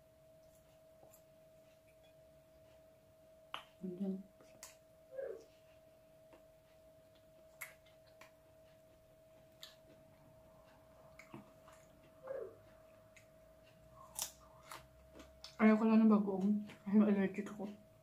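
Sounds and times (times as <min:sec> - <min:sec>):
faint steady tone: 0:00.0 - 0:14.6
person chewing: 0:07.0 - 0:15.6.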